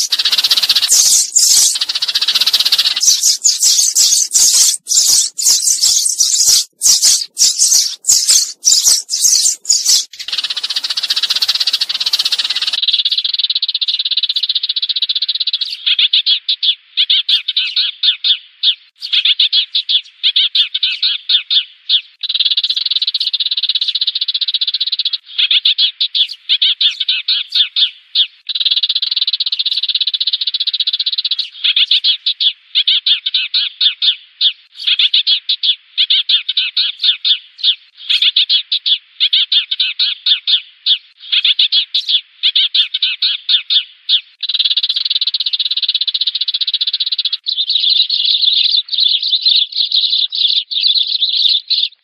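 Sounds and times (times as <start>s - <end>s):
chattering trill: 0.0s - 12.8s
sparrow flock chirping: 0.0s - 52.0s.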